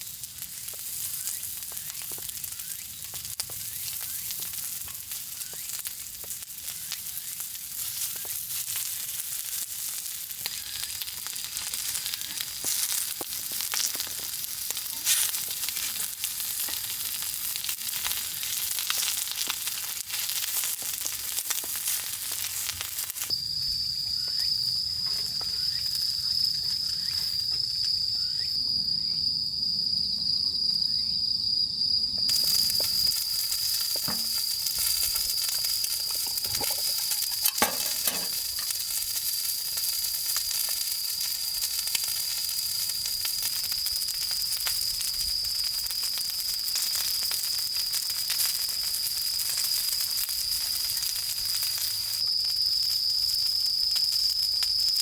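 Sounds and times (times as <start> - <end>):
steady sizzling hiss: 0.0 - 30.1, 32.3 - 55.0
crickets trilling: 0.0 - 55.0.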